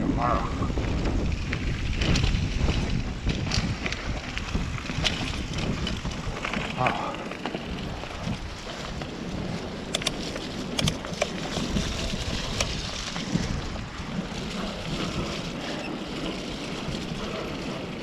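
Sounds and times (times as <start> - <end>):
tyre and wind noise rushing: 0.0 - 18.0
bike clicks and rattles: 0.2 - 18.0.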